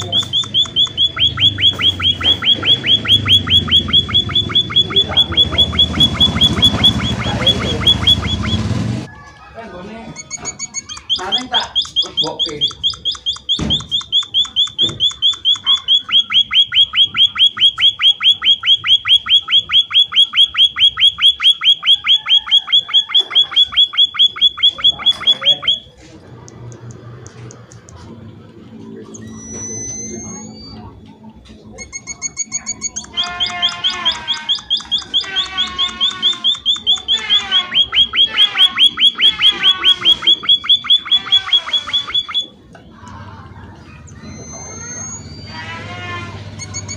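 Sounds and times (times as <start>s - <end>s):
rising bird whistles: 0.0s - 8.6s, 32.8s - 42.5s
bird twittering: 0.0s - 8.7s, 10.2s - 25.9s, 31.8s - 42.6s
bird chirping rapidly: 0.0s - 8.8s, 10.2s - 25.9s, 31.9s - 42.6s.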